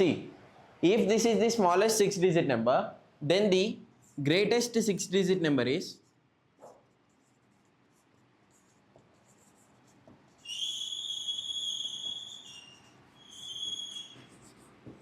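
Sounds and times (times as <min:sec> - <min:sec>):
marker squeaking on board: 0:06.6 - 0:15.0.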